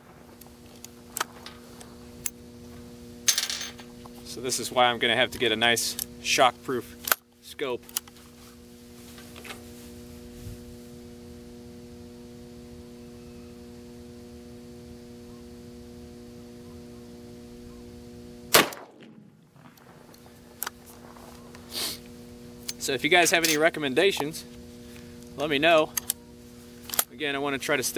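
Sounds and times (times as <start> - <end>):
steady low hum: 0.0 - 27.9
gunshot crack: 18.5 - 19.3.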